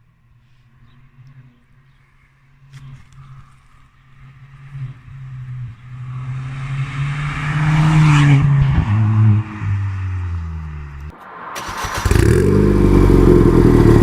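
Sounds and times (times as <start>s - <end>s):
car engine accelerating past: 4.4s - 14.0s.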